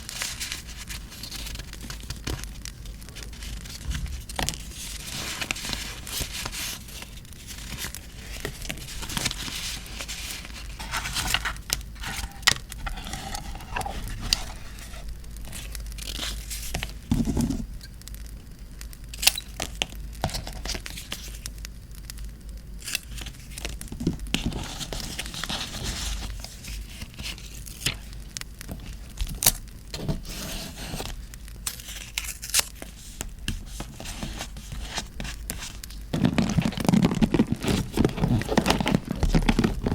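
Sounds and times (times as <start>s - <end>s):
paper tearing and crinkling: 0.0s - 17.6s, 29.2s - 39.9s
steady low hum: 0.0s - 39.9s
sharp crackles and clicks: 17.7s - 24.0s.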